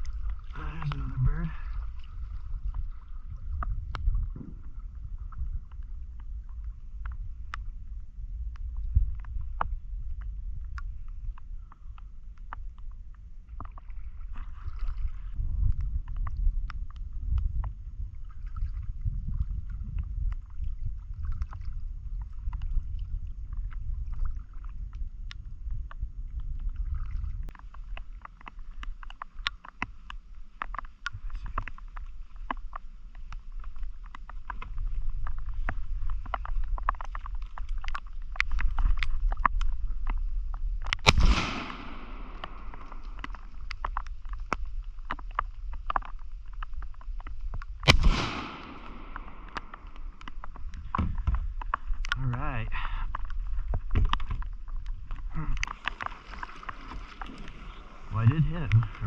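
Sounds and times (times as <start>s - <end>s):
paddle splashing water: 0.0s - 6.7s, 13.2s - 15.4s, 41.1s - 52.0s, 53.0s - 59.0s
wind on microphone: 0.0s - 28.2s, 33.6s - 59.0s.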